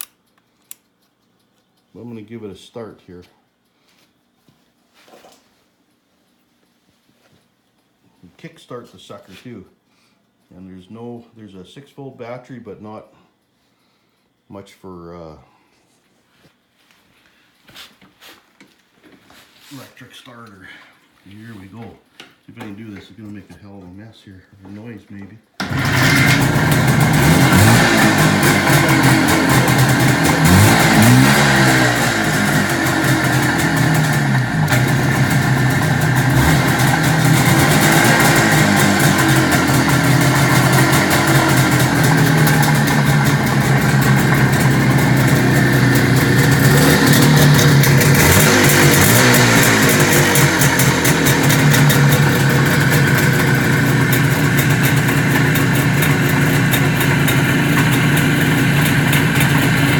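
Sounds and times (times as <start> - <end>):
two-stroke motorcycle engine revving: 25.6 - 59.9.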